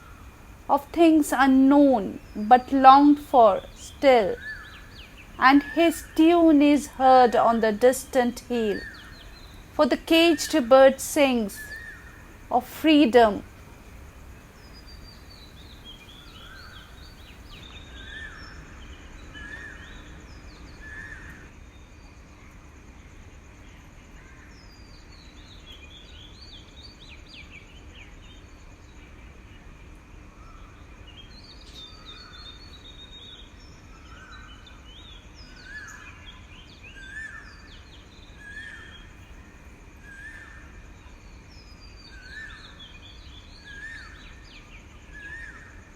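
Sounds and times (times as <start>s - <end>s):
birds calling: 0.0s - 18.4s.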